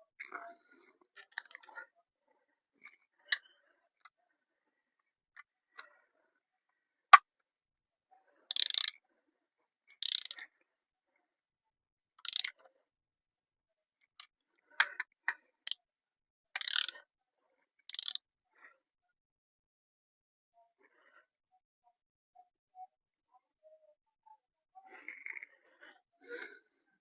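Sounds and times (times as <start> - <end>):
ratchet wrench clicking: 8.5 - 8.9, 10.0 - 10.3, 12.2 - 12.5, 16.6 - 16.9, 17.9 - 18.2.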